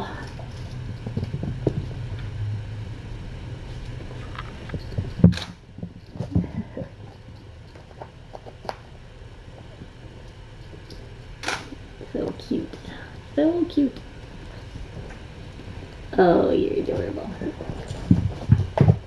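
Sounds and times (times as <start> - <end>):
kittens knocking toys: 0.0 - 9.0, 16.9 - 19.0
low room hum: 0.0 - 19.0
sharp click: 11.4 - 11.8.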